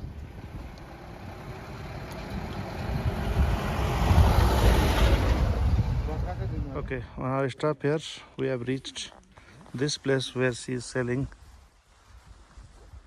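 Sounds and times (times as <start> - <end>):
tyre noise on road: 0.0 - 6.7
vehicle engine rumble passing: 0.0 - 6.8.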